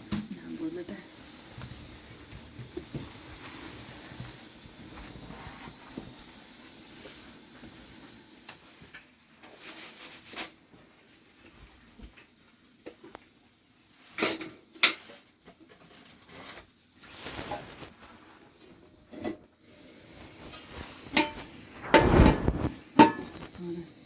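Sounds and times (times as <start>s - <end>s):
rustling: 8.6s - 12.0s, 15.2s - 18.9s
objects knocking and clattering: 21.1s - 23.5s.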